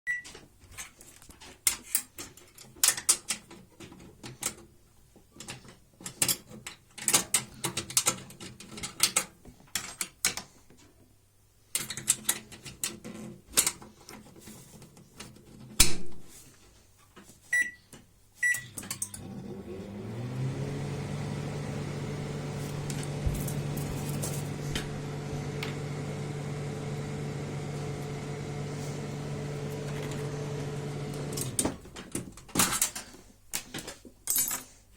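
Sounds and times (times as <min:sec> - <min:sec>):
clicks and knocks of handling: 0:00.2 - 0:11.1, 0:11.7 - 0:16.2, 0:31.4 - 0:34.8
short keypad beeps: 0:17.6 - 0:17.8, 0:18.4 - 0:18.7
microwave oven humming: 0:19.2 - 0:31.6.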